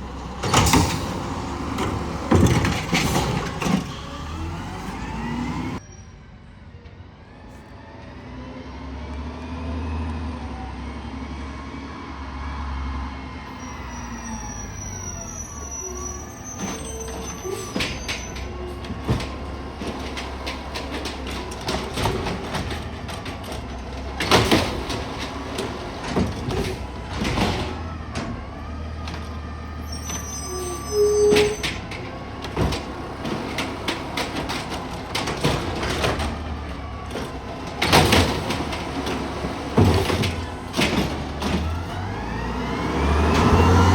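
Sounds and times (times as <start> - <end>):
truck engine revving: 0.0 - 5.8, 8.3 - 43.9
hydraulic whines: 0.0 - 6.1, 13.5 - 43.9
knocks and bangs from bins: 0.3 - 5.8, 16.6 - 29.4, 31.3 - 42.6.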